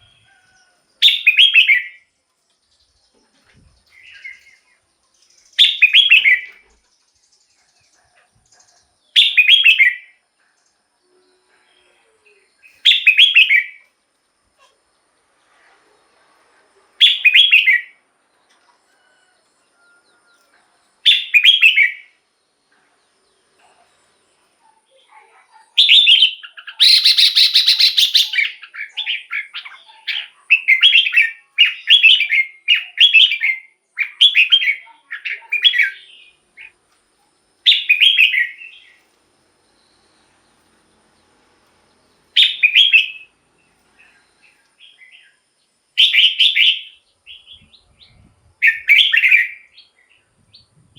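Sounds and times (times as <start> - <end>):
bird singing warbled phrases: 1.0 - 10.2, 11.2 - 13.9, 16.9 - 18.0, 21.0 - 22.6, 23.4 - 39.1, 42.1 - 50.9
harsh scratchy bird chatter: 26.4 - 30.8.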